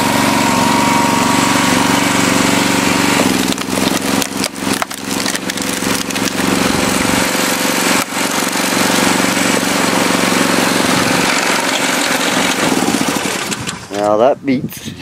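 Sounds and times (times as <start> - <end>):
tractor engine running: 0.0 - 14.3
wood splitting cracks: 3.1 - 9.8, 11.0 - 14.1.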